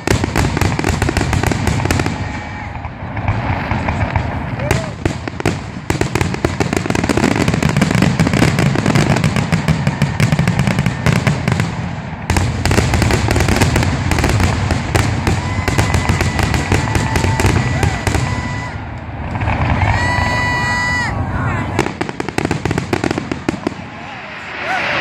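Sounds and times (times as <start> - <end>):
fireworks bursting and crackling: 0.0 - 25.0
steady whistle-like tone: 15.3 - 18.9.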